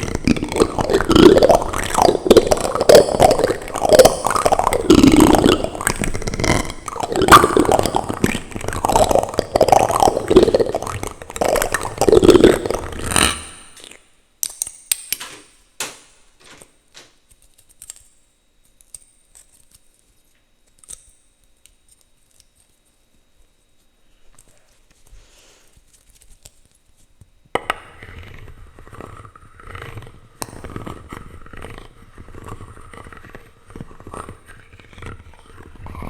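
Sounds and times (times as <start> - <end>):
plastic utensils rubbing on microphone: 0.0 - 13.8.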